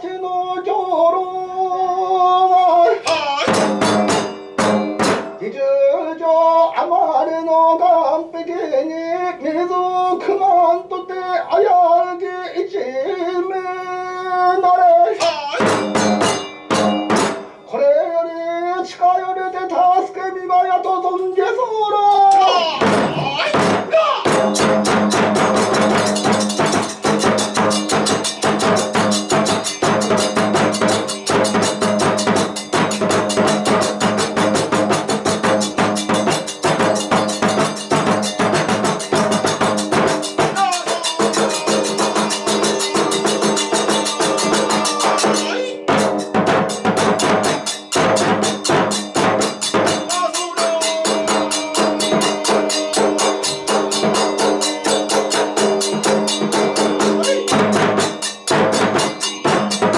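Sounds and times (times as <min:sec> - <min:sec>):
fast drumming: 0:02.9 - 0:05.6, 0:15.1 - 0:17.7, 0:22.0 - 0:59.9
sharp percussion strokes: 0:03.0 - 0:05.5, 0:15.2 - 0:17.9, 0:22.1 - 0:59.9
held pitched notes: 0:24.3 - 0:59.9.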